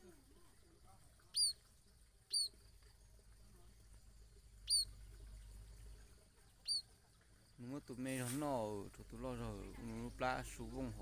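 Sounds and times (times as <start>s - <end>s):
bird peeping: 1.2s - 2.6s, 4.6s - 5.0s, 6.5s - 6.9s.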